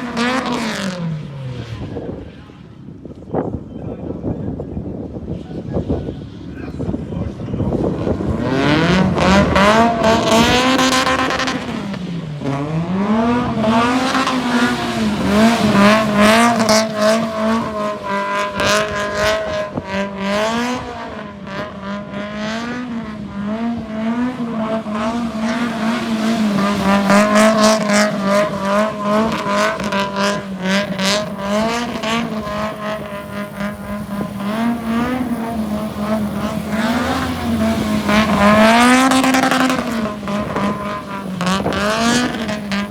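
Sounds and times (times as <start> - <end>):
car engine revving: 0.0 - 42.9.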